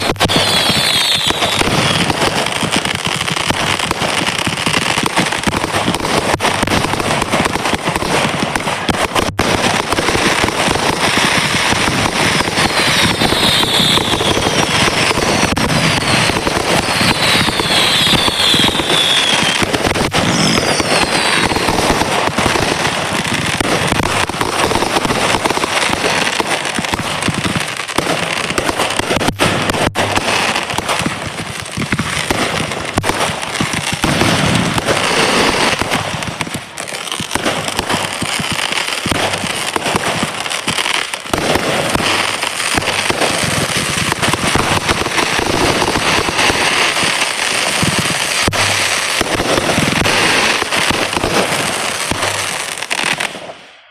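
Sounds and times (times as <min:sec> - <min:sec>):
firework falling whistles: 0:00.0 - 0:02.1, 0:12.3 - 0:21.9
fireworks crackling and popping: 0:00.0 - 0:53.9.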